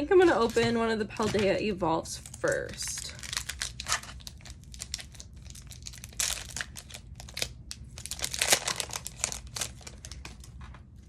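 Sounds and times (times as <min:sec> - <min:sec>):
foil wrapper crinkling and tearing: 0:02.2 - 0:10.8.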